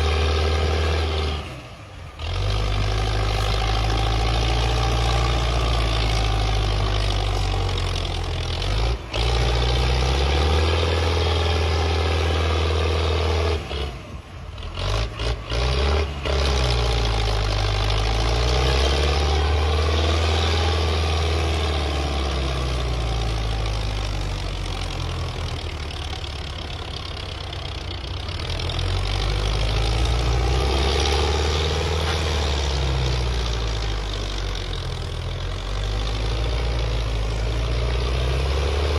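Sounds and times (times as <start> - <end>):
tractor diesel engine revving: 0.0 - 38.9.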